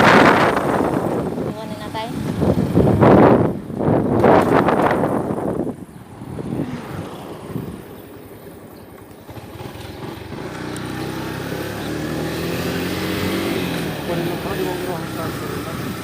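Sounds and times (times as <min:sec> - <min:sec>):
loud rush of noise: 0:00.0 - 0:08.6
vehicle engine running: 0:04.9 - 0:16.0.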